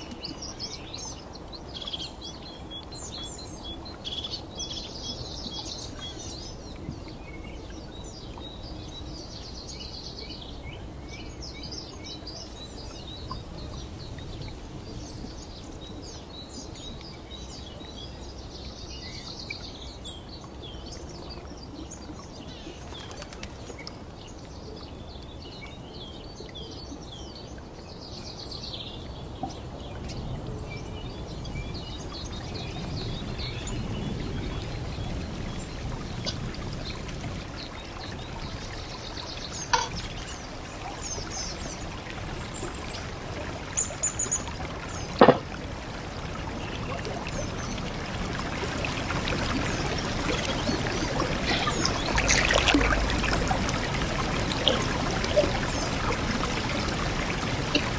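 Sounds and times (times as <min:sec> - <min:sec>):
stream water trickling: 0:00.0 - 0:57.9
birds chirping: 0:39.3 - 0:45.6, 0:46.2 - 0:57.9
sharp knocks: 0:39.8 - 0:40.0, 0:45.2 - 0:45.5.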